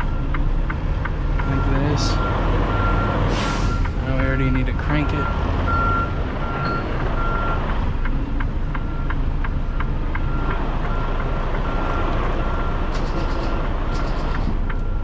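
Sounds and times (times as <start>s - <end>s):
regular ticking: 0.0s - 3.2s, 3.8s - 15.0s
diesel truck engine running: 0.0s - 15.0s
backup alarm beeping: 1.4s - 7.6s.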